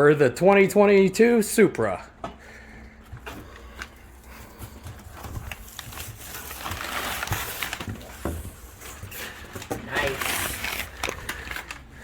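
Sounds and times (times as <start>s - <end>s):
packing material rustling: 3.4s - 12.0s.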